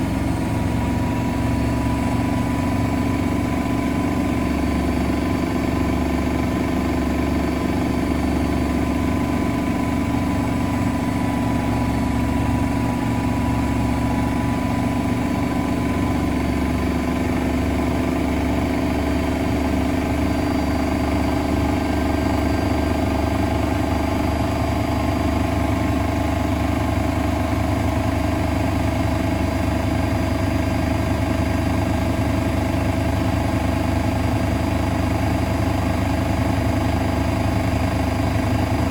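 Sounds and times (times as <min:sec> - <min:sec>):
washing machine running: 0:00.0 - 0:38.9.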